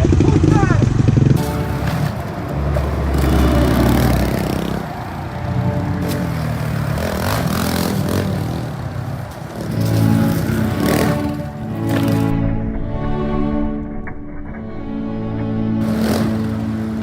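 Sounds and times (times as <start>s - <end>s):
small motorbike engine revving: 0.0s - 12.3s, 15.8s - 17.0s.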